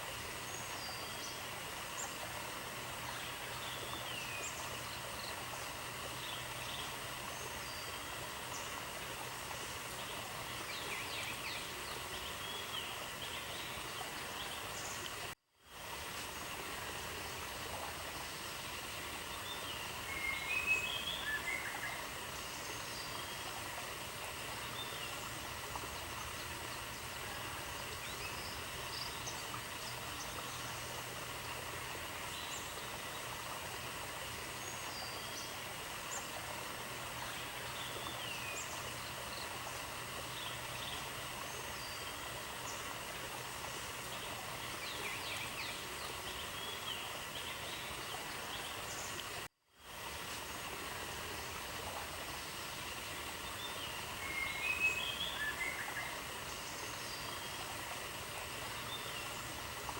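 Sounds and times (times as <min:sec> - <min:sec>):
steady outdoor hiss: 0:00.0 - 0:59.9.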